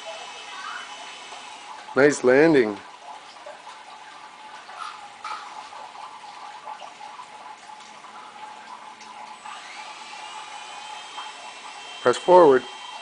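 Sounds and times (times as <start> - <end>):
rc helicopter motor whirring: 0.0 - 1.7, 9.4 - 13.0.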